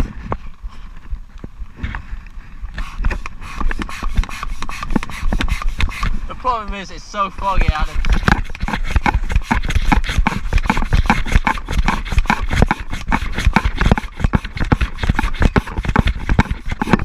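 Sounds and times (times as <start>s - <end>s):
wind rumble: 0.0s - 12.9s.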